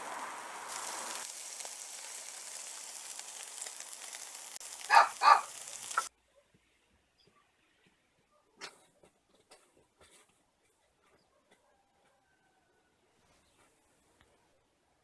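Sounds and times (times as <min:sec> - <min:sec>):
background hiss: 0:00.0 - 0:06.1.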